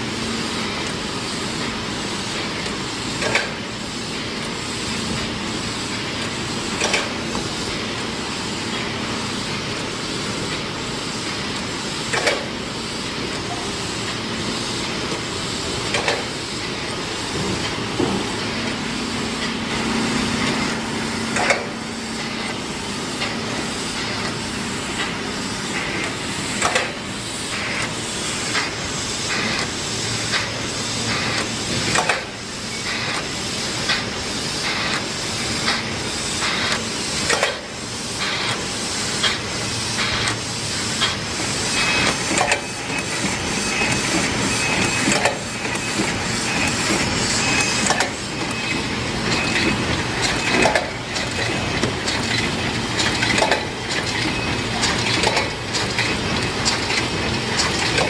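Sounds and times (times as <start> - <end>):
machinery clatter: 0.6 - 58.0
hiss: 23.2 - 48.4.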